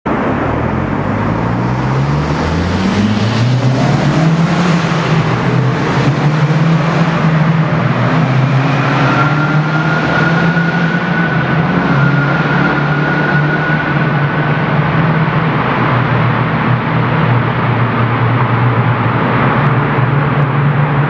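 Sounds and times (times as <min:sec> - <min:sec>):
car engine accelerating: 0:00.1 - 0:21.0.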